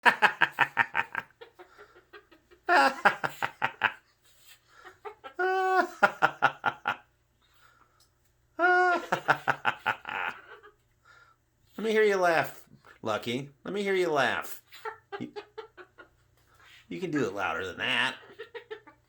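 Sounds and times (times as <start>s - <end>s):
cockatoo imitating laughter: 0.0s - 4.0s, 4.7s - 7.0s, 8.6s - 10.8s, 14.7s - 16.8s, 17.8s - 19.0s.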